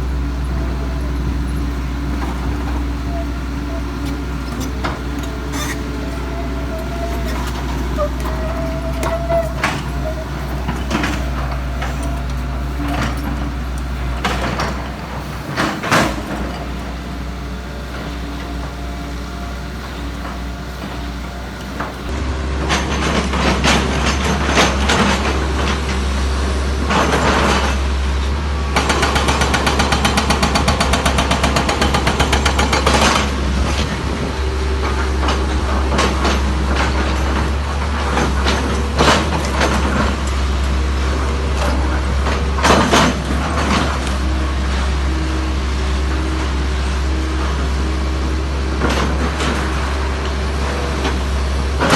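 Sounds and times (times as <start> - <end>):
diesel engine hum: 0.0 - 22.1.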